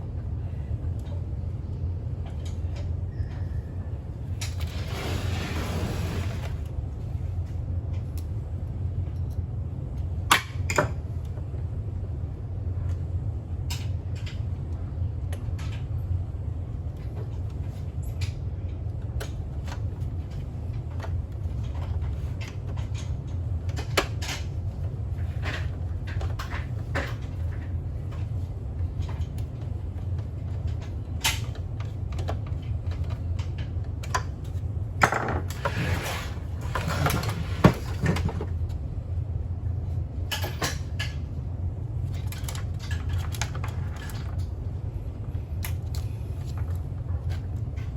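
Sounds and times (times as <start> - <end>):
steady low hum: 0.0 - 47.9
rustling and scraping: 4.6 - 6.7, 35.6 - 38.5.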